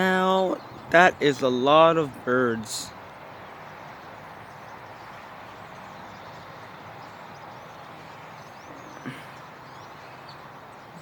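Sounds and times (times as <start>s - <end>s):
flock of birds calling: 0.0s - 11.0s.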